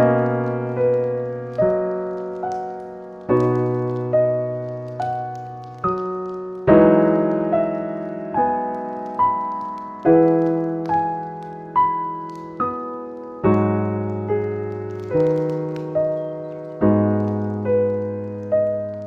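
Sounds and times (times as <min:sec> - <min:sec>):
gentle solo piano music: 0:00.0 - 0:19.0.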